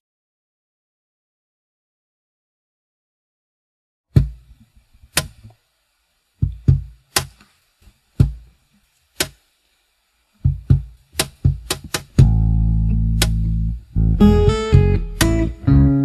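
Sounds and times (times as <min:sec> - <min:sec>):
kick drum thumps: 0:04.2 - 0:04.4, 0:06.4 - 0:07.4, 0:08.2 - 0:08.5, 0:10.4 - 0:12.5
snare drum cracks: 0:06.4 - 0:07.5, 0:09.2 - 0:09.4, 0:10.5 - 0:12.4, 0:13.2 - 0:13.5, 0:15.2 - 0:15.5.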